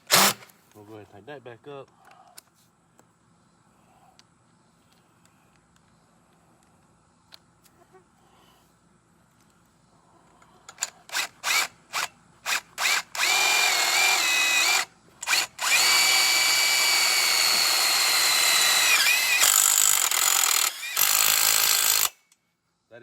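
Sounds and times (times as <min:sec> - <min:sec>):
drill trigger blips: 0:00.0 - 0:00.5, 0:11.1 - 0:22.3
cordless drill motor whine: 0:00.1 - 0:00.4, 0:10.8 - 0:22.3.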